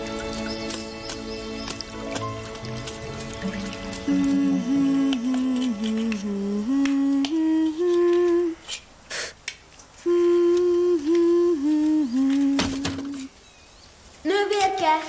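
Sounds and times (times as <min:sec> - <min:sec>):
girl humming a tune: 0:04.0 - 0:08.8, 0:10.0 - 0:13.3.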